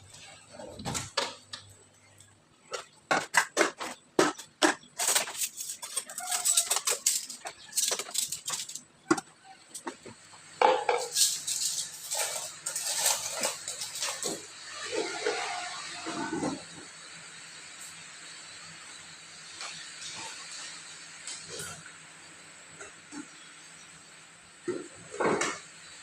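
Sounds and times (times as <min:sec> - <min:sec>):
plates and glasses clinking: 0:04.2 - 0:10.0, 0:10.6 - 0:14.4.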